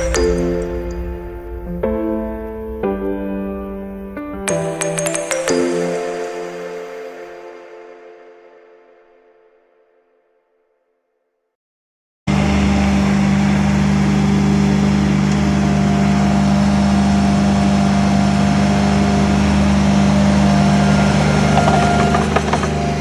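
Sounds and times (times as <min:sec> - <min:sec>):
skid steer engine running: 0:12.3 - 0:23.0.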